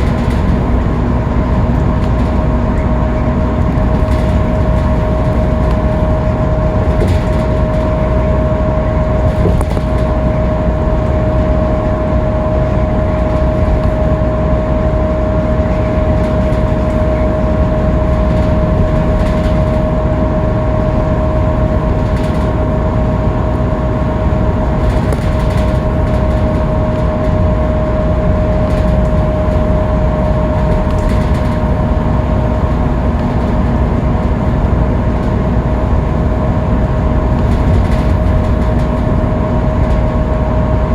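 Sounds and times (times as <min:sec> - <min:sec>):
bus engine and road drone: 0:00.0 - 0:40.9.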